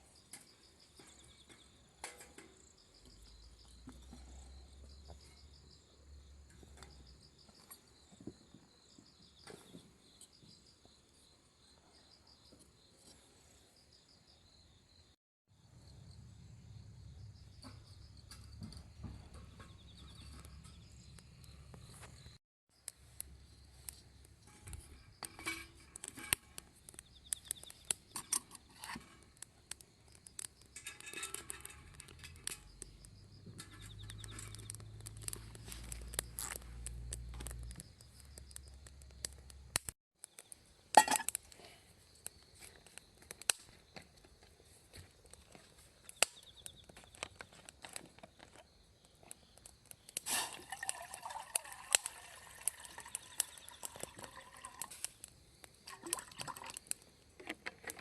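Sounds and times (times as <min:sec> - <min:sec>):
crickets chirping: 0:00.0 - 0:39.6, 0:40.4 - 0:58.0
small clicks and crackles: 0:20.1 - 0:58.0.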